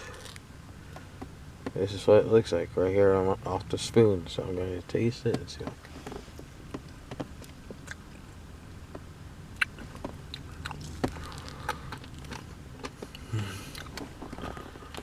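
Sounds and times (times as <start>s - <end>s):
chewing mouth sounds: 7.8s - 8.2s, 9.6s - 15.0s.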